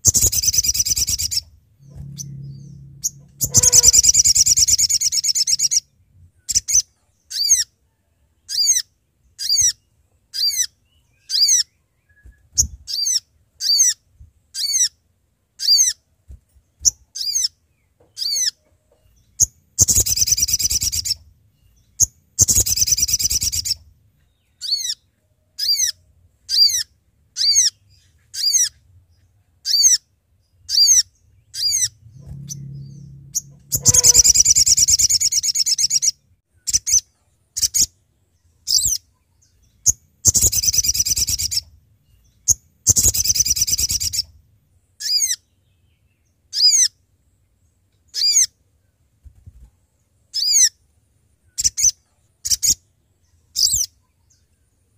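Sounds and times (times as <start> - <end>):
bird sharp high calls: 0.0 - 5.9, 30.7 - 37.0.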